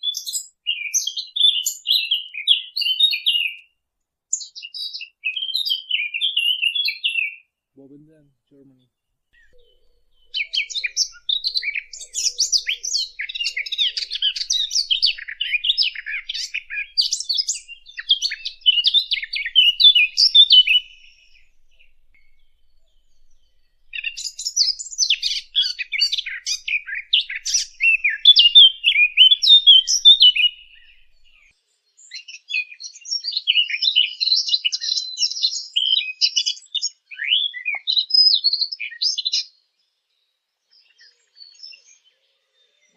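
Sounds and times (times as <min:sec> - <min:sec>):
songbird twittering and chirping: 0:00.0 - 0:03.7, 0:04.3 - 0:07.4, 0:09.4 - 0:42.9.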